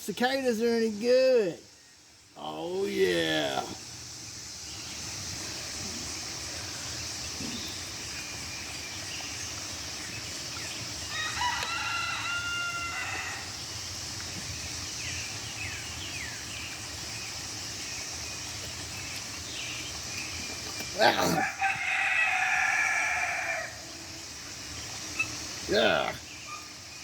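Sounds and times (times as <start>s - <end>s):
cicada chorus: 0.0s - 27.0s
rooster crowing: 11.1s - 13.6s, 21.2s - 24.2s.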